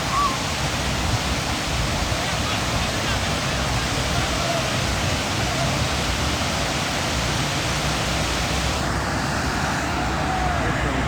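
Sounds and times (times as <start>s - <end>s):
rushing falling water: 0.0s - 11.0s.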